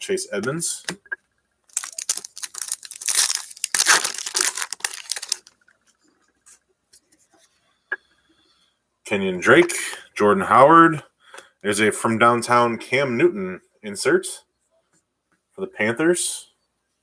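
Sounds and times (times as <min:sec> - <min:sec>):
foil wrapper tearing and crinkling: 0:01.7 - 0:05.6.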